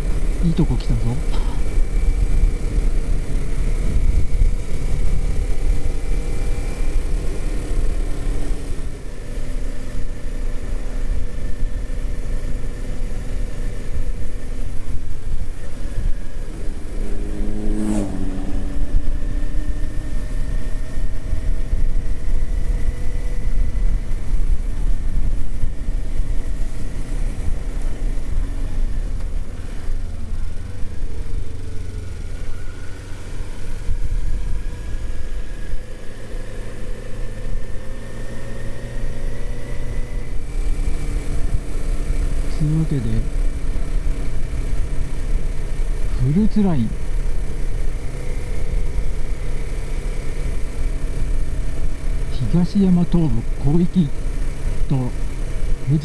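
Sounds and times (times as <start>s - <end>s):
motorcycle engine running: 0.0s - 56.0s
wind rush on microphone: 1.6s - 8.1s.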